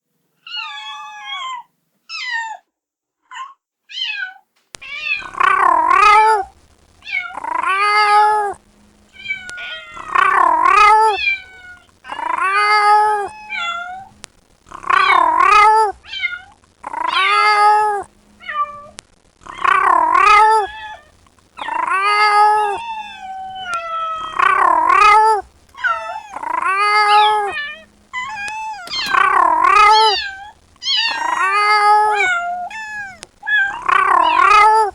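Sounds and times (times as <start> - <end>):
kitten meowing: 0.4 - 2.6, 3.9 - 14.1, 19.6 - 34.9.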